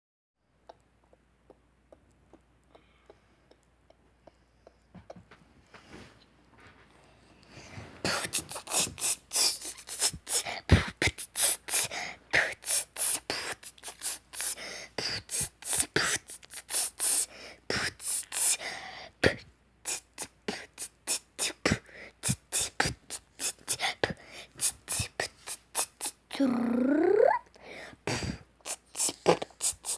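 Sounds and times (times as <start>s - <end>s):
person beatboxing: 19.9s - 27.4s, 28.6s - 29.9s.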